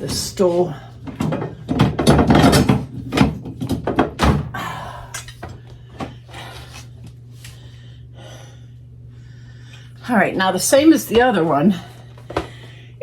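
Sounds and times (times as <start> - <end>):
knocks and thunks of objects: 0.0 - 4.7
steady low hum: 0.0 - 13.0.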